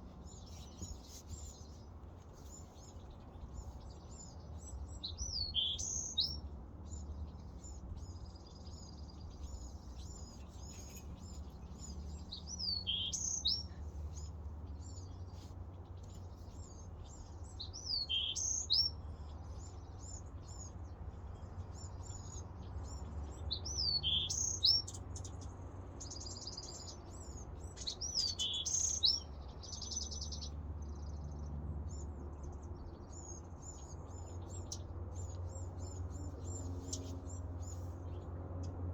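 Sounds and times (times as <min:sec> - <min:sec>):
bird chirps: 0:00.0 - 0:15.4, 0:16.0 - 0:19.0, 0:23.5 - 0:24.9, 0:26.4 - 0:30.5
bird trills: 0:05.2 - 0:06.4, 0:09.4 - 0:14.3.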